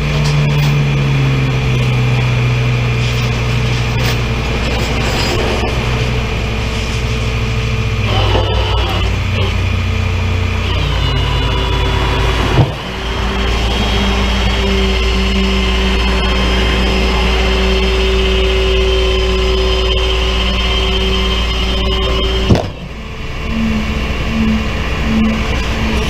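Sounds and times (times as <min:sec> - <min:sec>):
engine running low rumble: 0:00.0 - 0:26.0
short pulsing tone: 0:10.6 - 0:26.0.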